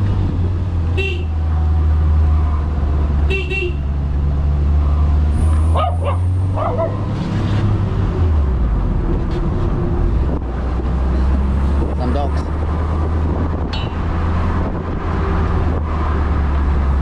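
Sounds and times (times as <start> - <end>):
dog barking: 5.7 - 7.0.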